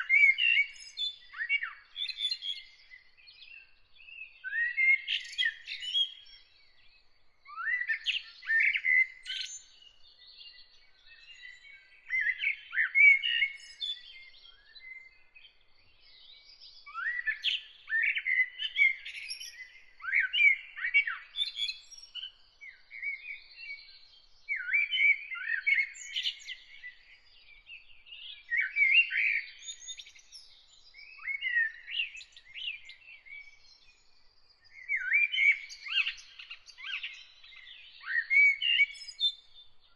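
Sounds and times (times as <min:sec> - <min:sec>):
songbirds warbling: 0:24.5 - 0:39.3.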